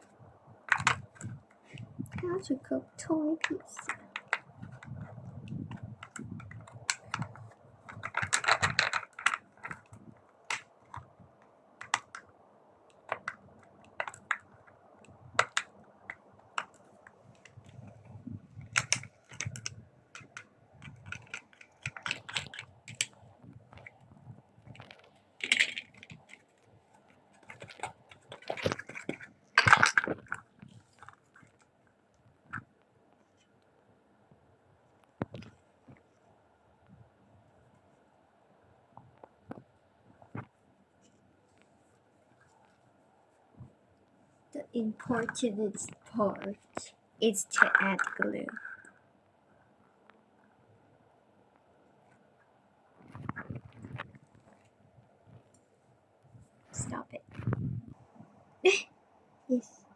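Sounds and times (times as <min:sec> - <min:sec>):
small hard objects clicking: 0:00.6 - 0:02.4, 0:03.0 - 0:12.3, 0:12.9 - 0:26.7, 0:27.3 - 0:31.7, 0:45.0 - 0:49.0.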